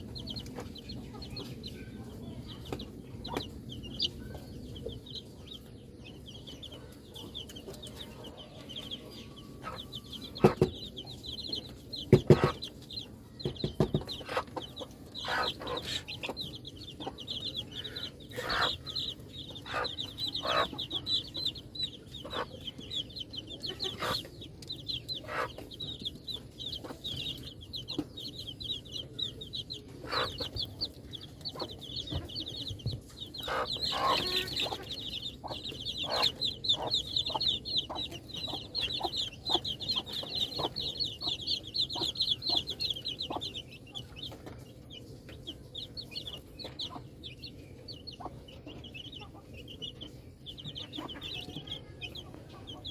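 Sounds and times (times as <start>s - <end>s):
baby chicks peeping: 0.0s - 52.9s
sharp taps and knocks: 11.6s - 14.6s.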